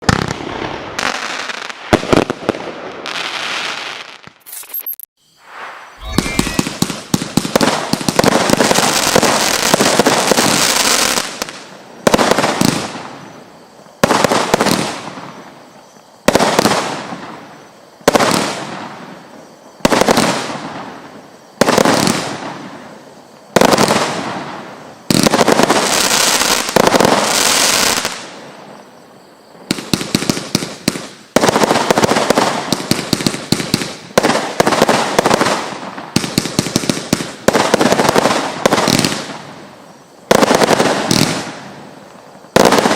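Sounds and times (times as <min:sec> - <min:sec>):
firework crackling: 0:05.3 - 0:42.9
firework shots: 0:05.4 - 0:13.3, 0:29.6 - 0:42.9.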